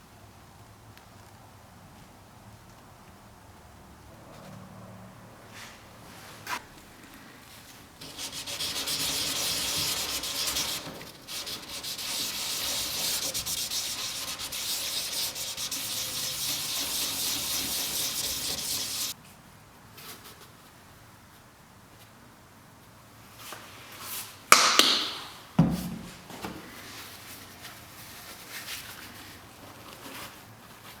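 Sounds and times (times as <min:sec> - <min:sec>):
sanding back and forth: 0:08.0 - 0:19.2.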